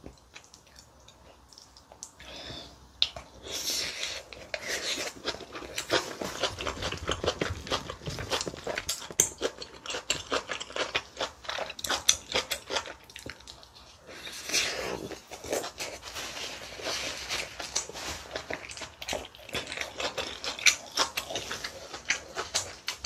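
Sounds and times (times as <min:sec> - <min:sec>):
wet chewing and crunching: 0:03.0 - 0:23.0.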